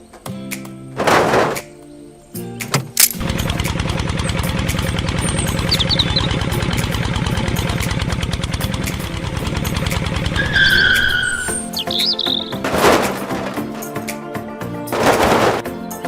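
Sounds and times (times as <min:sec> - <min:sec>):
tractor engine knocking: 0:03.2 - 0:14.1.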